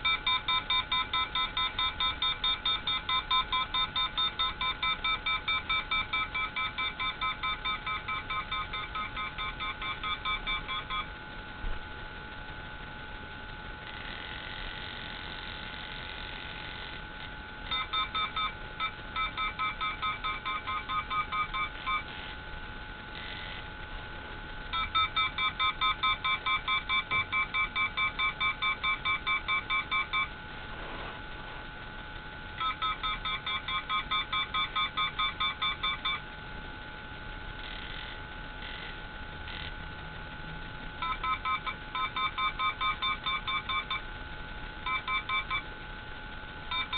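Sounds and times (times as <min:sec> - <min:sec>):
rapid electronic beeps: 0:00.0 - 0:11.2, 0:17.7 - 0:22.2, 0:24.7 - 0:30.4, 0:32.6 - 0:36.3, 0:41.0 - 0:44.1, 0:44.8 - 0:45.7
high electronic hum: 0:00.0 - 0:46.9.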